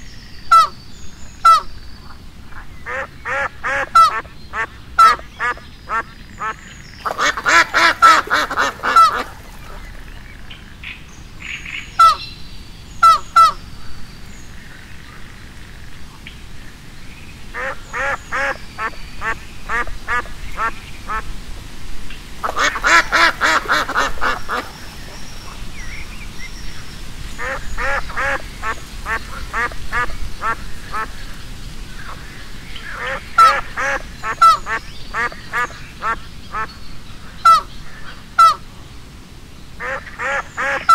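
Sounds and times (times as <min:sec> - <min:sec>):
ducks quacking: 0:02.9 - 0:10.4, 0:17.6 - 0:21.3, 0:22.4 - 0:25.6, 0:27.4 - 0:31.2, 0:32.8 - 0:36.7, 0:38.4 - 0:38.6, 0:39.8 - 0:40.9.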